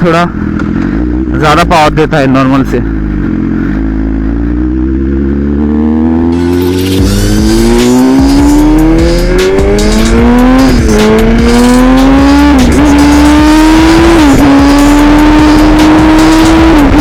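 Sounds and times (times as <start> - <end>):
motorcycle engine accelerating hard: 0.0 - 17.0.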